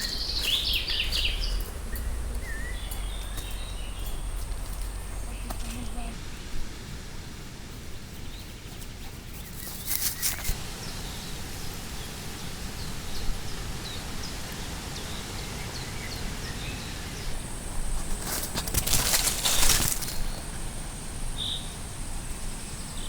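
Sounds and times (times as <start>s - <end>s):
small bird chirping: 0.0s - 6.2s
outdoor background hiss: 0.0s - 23.0s
rustle of movement: 0.0s - 23.0s.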